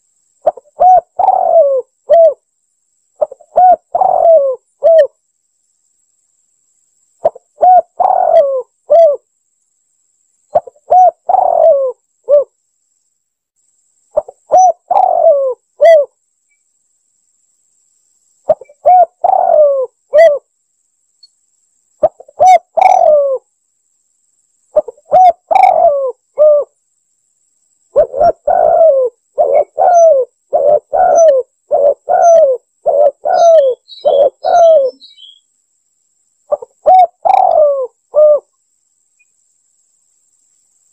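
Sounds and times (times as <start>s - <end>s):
dove cooing: 0.4s - 2.4s, 3.2s - 5.2s, 7.2s - 9.2s, 10.5s - 12.5s, 14.2s - 16.1s, 18.5s - 20.5s, 22.0s - 23.4s, 24.8s - 26.7s, 27.9s - 35.4s, 36.5s - 38.5s
faint high chirps: 32.1s - 35.6s, 36.2s - 40.9s.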